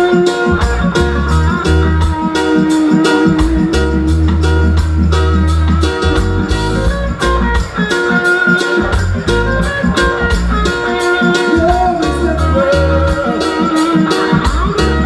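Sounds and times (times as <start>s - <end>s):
bass line: 0.0s - 15.0s
guitar: 0.0s - 15.0s
steady drum beat: 0.0s - 15.0s.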